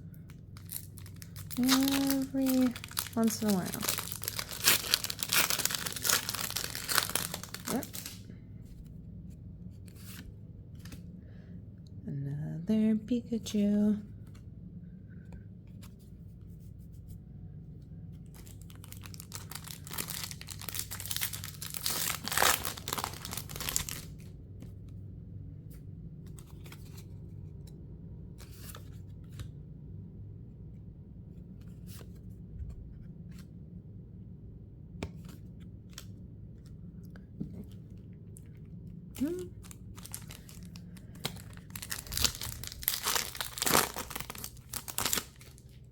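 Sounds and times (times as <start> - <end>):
low steady hum: 0.0 - 45.9
cards rustling and clicking: 0.2 - 8.2, 18.4 - 24.9, 25.7 - 27.6, 35.0 - 45.8
foil pack tearing: 0.6 - 8.2, 18.5 - 24.2, 39.6 - 45.6.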